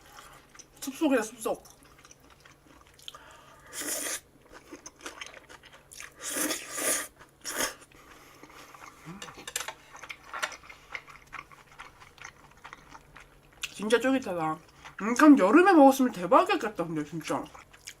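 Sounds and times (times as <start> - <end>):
biting and chewing noodles: 1.6 - 13.8.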